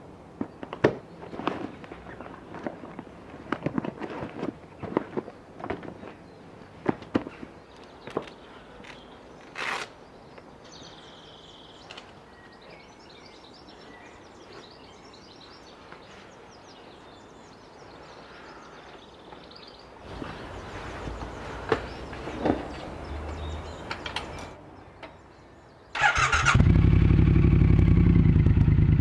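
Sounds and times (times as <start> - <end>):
small birds chirping and singing: 5.9 - 26.0.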